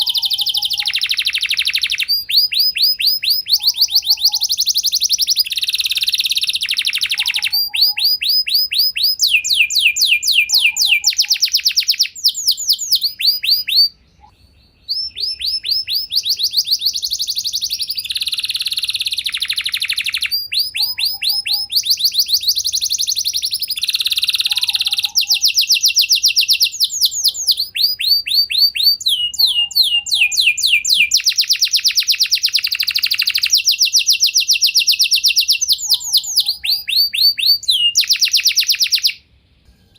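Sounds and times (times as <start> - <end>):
canary singing trills: 0.0 - 39.2.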